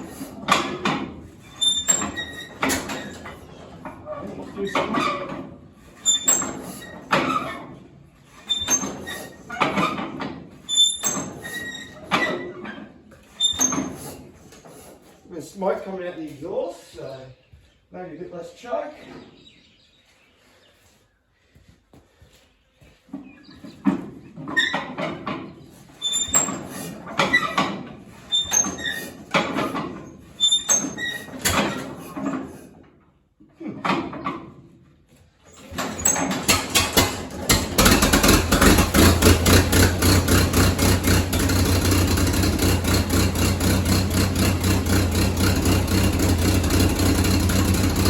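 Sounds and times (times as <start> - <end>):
engine turning over with metallic squeak: 0.0 - 15.2, 23.3 - 32.9, 35.4 - 48.0
tractor engine firing fitfully: 35.7 - 48.0.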